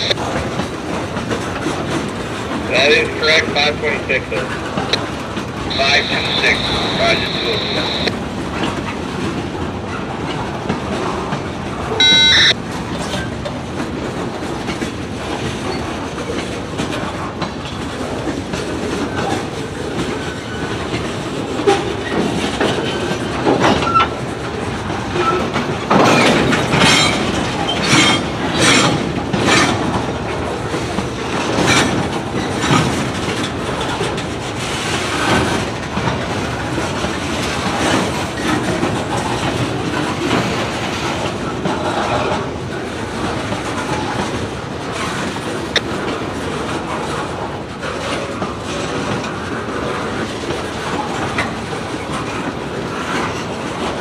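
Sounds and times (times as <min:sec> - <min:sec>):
freight train rumbling past: 0:00.0 - 0:54.0
wheels clacking over rail joints: 0:00.0 - 0:54.0
high electronic tone: 0:05.7 - 0:08.1, 0:12.0 - 0:12.5.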